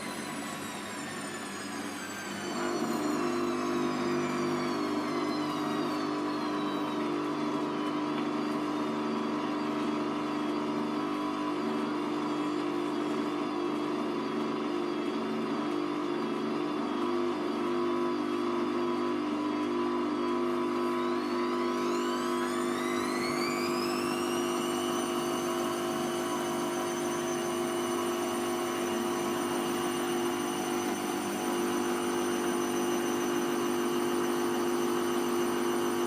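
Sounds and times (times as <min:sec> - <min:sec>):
washing machine drum spinning: 0:20.2 - 0:36.0.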